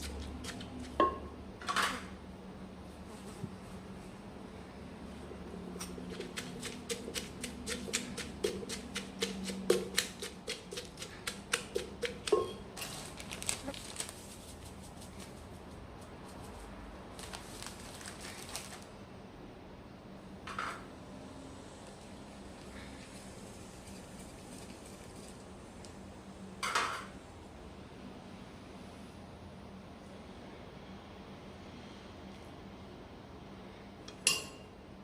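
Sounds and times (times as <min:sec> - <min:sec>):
rustling: 0:12.2 - 0:18.9.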